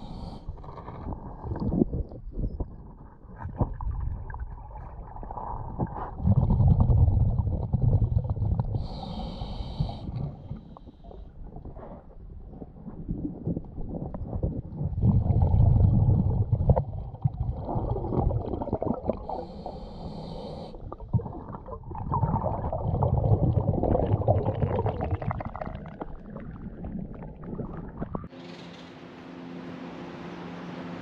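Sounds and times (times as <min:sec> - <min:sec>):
gurgling exhaled bubbles: 0:00.0 - 0:28.3
regulator inhalation hiss: 0:08.8 - 0:10.1, 0:19.4 - 0:20.8.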